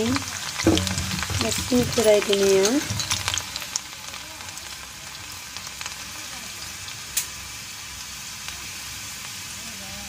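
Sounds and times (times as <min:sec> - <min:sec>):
garlic sizzling in oil: 0:00.0 - 0:10.0
sharp oil pop: 0:00.6 - 0:02.0.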